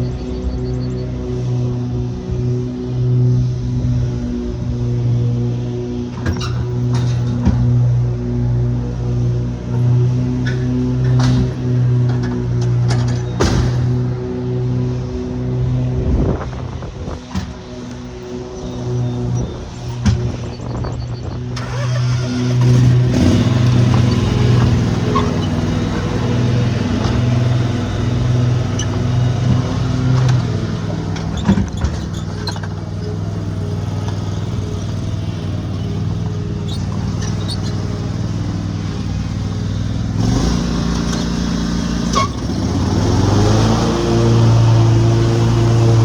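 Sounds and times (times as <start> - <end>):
gasoline engine running: 9.4 - 46.0.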